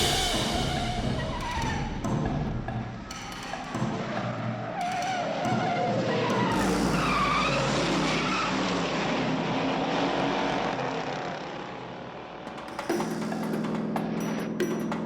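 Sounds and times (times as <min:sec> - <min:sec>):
car engines revving hard: 0:06.5 - 0:12.4.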